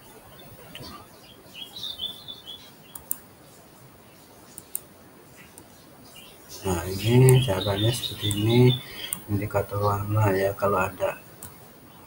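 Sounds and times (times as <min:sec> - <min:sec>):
bird chirping: 0:00.0 - 0:12.0
computer mouse clicks: 0:02.9 - 0:03.2, 0:04.5 - 0:05.7.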